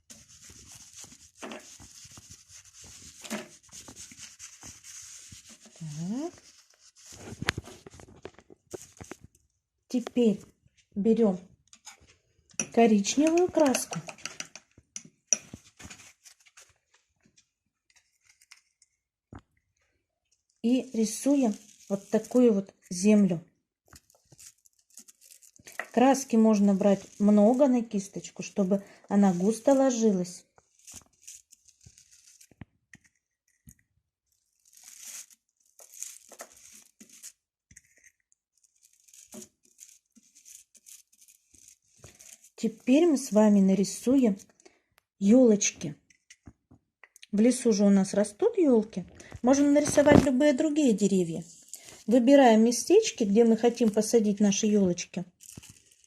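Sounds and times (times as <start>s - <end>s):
paintbrush scrubbing in paint: 0.0s - 8.0s, 20.8s - 23.0s, 24.0s - 32.6s, 34.3s - 43.0s.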